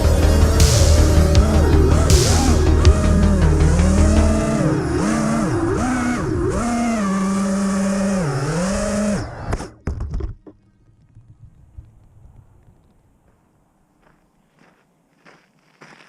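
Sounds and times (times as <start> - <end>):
drone motors whining: 0.0 - 9.8.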